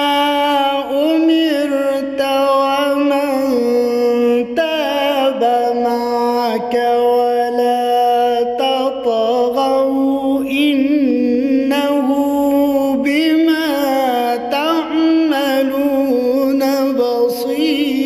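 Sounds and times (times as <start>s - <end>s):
man chanting recitation: 0.0s - 18.0s.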